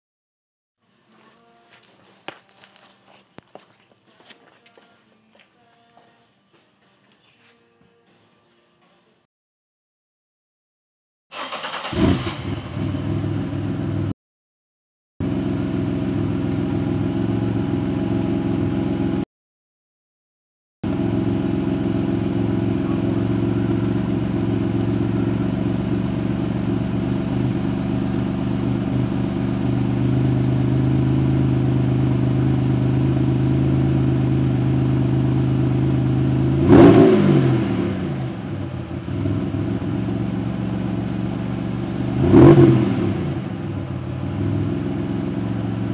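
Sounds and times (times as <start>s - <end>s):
engine revving: 11.3s - 14.1s, 20.9s - 45.9s
car engine idling: 15.2s - 19.2s, 20.9s - 45.9s.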